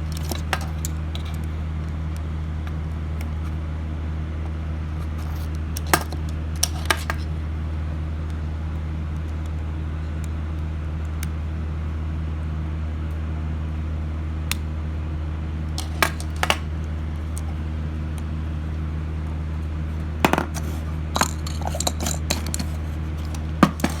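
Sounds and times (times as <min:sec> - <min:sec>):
metallic clicks of small parts: 0:00.0 - 0:01.5, 0:05.8 - 0:07.3, 0:15.8 - 0:16.6, 0:20.3 - 0:24.0
steady low hum: 0:00.0 - 0:24.0.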